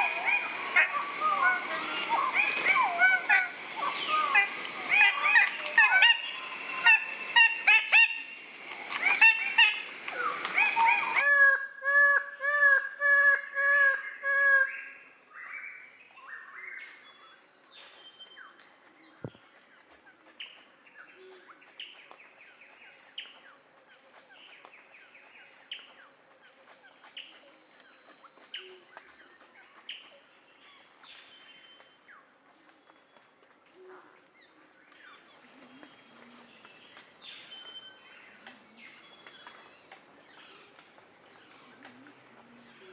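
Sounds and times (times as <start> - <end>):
birds calling: 0.0 - 11.2.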